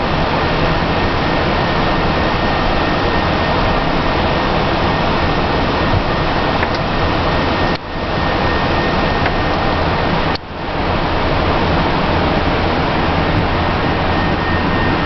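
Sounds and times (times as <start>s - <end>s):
cockpit air and fan noise: 0.0s - 15.0s
faint high whine: 0.0s - 15.0s.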